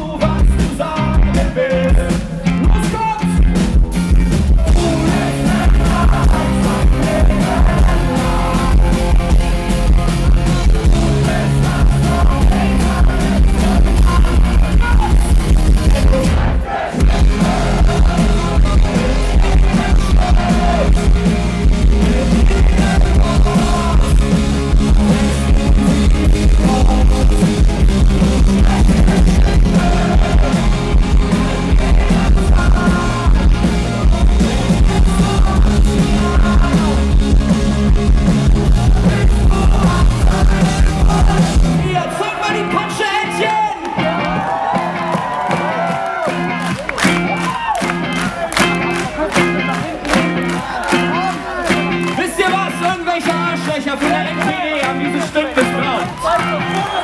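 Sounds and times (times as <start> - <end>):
rock band playing live: 0.0 - 57.0
person singing: 4.6 - 9.3, 10.4 - 16.4, 17.0 - 24.5, 26.2 - 27.6, 28.2 - 37.2, 38.6 - 44.6.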